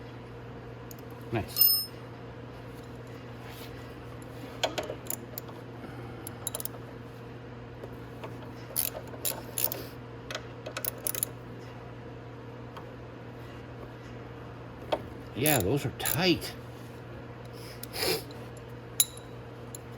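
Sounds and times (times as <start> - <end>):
steady low hum: 0.0 - 19.9
hand tools clicking on metal: 6.4 - 6.7, 15.4 - 16.2, 19.0 - 19.9.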